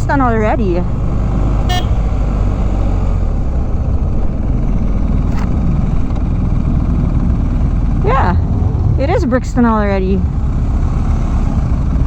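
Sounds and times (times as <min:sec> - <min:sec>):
motorcycle engine drone: 0:00.0 - 0:12.0
wind rush: 0:03.1 - 0:11.7.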